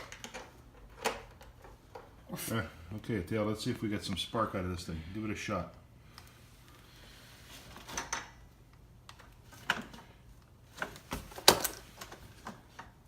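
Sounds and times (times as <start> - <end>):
tools clicking and knocking: 0.0 - 2.1.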